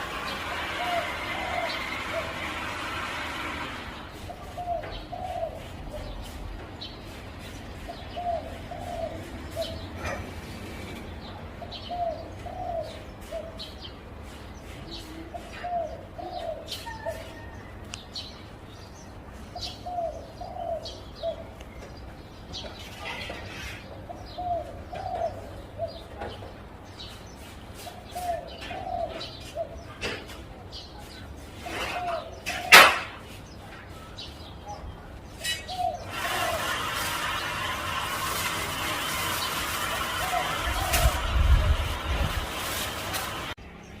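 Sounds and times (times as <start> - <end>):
dove cooing: 0.2 - 3.4, 4.1 - 6.4, 7.8 - 10.5, 11.6 - 13.7, 15.0 - 17.6, 19.7 - 21.5, 23.8 - 26.2, 27.8 - 30.2, 35.5 - 38.4, 39.2 - 42.1.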